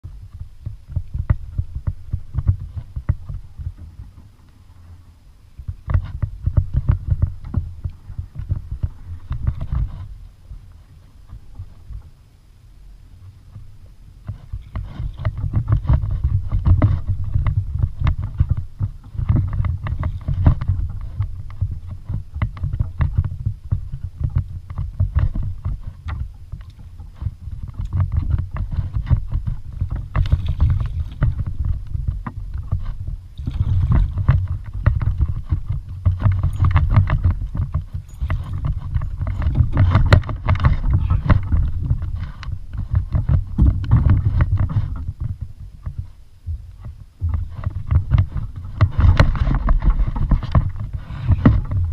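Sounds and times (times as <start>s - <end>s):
strong low rumble: 0.0s - 51.9s
water sloshing against kayak hull: 0.3s - 51.9s
knocks and handling noise: 24.3s - 51.9s.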